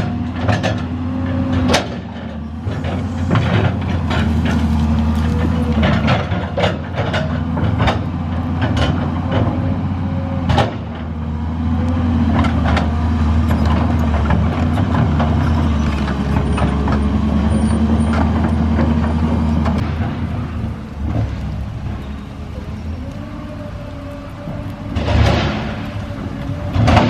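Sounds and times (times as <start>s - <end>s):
bonfire burning: 1.0s - 17.3s, 18.6s - 27.0s
fire pops and crackles: 1.6s - 8.0s, 19.7s - 27.0s.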